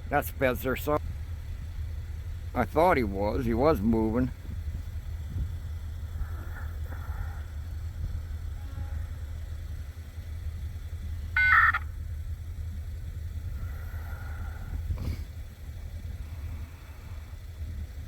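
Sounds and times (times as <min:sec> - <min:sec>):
engine idling: 0:00.0 - 0:18.0
short loud multi-tone beep: 0:11.4 - 0:11.8.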